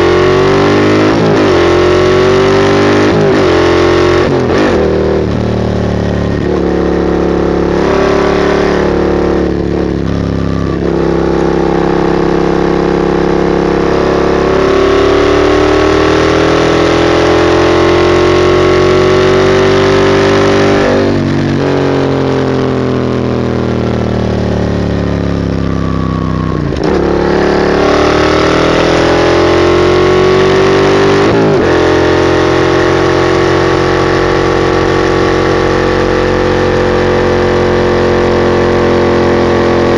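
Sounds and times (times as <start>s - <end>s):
gear changes: 0.0s - 23.8s, 24.9s - 32.0s
motorcycle engine revving: 0.0s - 39.9s.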